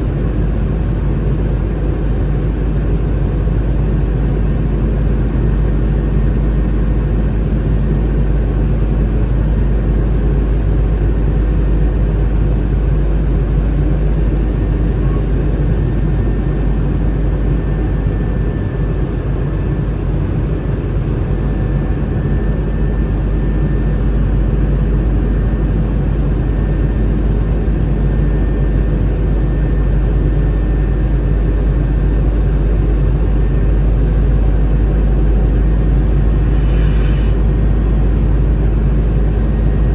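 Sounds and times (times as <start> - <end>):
aircraft cabin rumble: 0.0 - 39.9
faint steady hum: 0.0 - 39.9.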